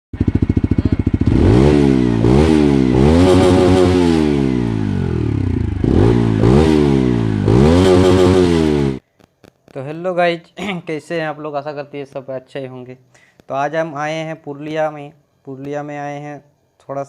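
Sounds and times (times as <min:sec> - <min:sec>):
motorcycle engine revving: 0:00.2 - 0:09.0.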